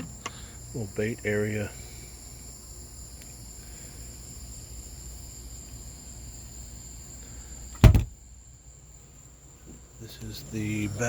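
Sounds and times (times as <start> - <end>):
crickets chirring: 0.0 - 11.0
loud thump: 7.8 - 8.2.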